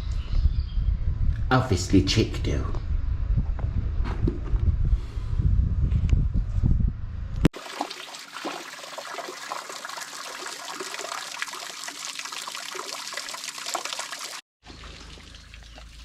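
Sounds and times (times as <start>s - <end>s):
wind rumble on microphone: 0.0s - 7.5s
fountain water trickling: 7.6s - 16.0s.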